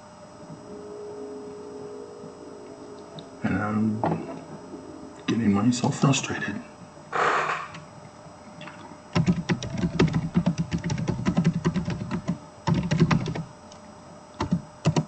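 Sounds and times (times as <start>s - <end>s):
typing on a computer keyboard: 9.2s - 13.5s, 14.4s - 15.0s.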